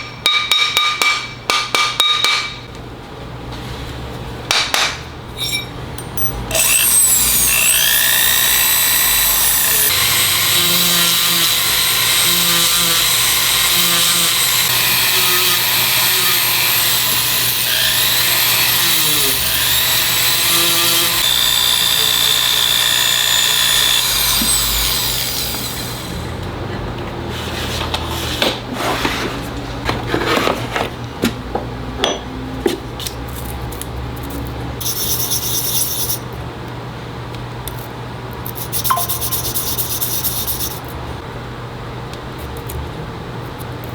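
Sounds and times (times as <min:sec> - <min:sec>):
rotary tool whining: 0:06.5 - 0:26.3, 0:34.8 - 0:36.2, 0:38.5 - 0:40.9.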